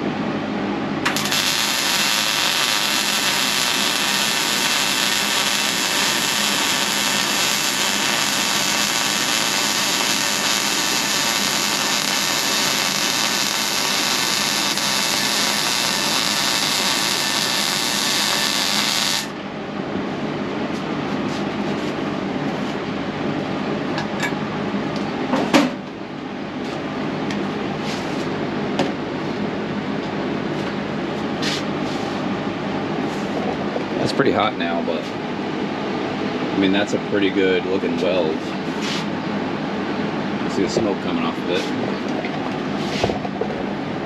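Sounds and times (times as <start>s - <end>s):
welder crackling hiss: 1.1s - 19.3s.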